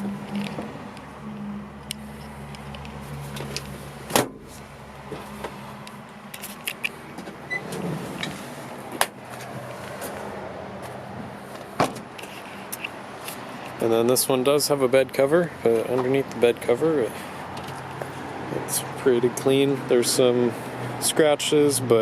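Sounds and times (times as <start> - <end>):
solid clunks of truck panels: 4.1 - 4.5, 11.8 - 12.1.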